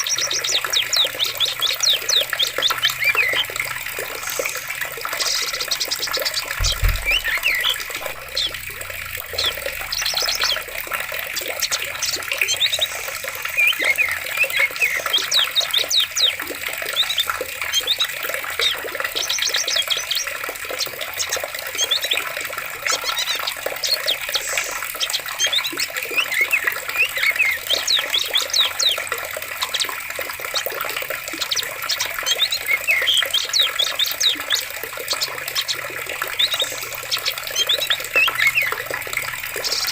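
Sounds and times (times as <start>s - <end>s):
forest birds chirping: 0.0s - 39.9s
stream flowing: 0.0s - 39.9s
low thump: 6.6s - 7.4s.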